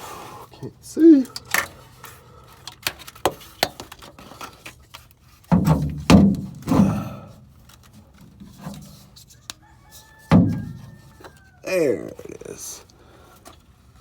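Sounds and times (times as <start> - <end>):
heavy thunks: 5.5 - 7.4, 10.3 - 10.9.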